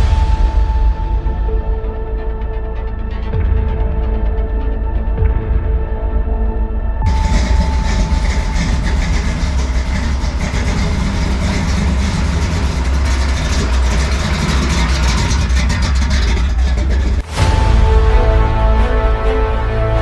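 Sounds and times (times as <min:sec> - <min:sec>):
car engine rumbling: 0:07.1 - 0:19.0.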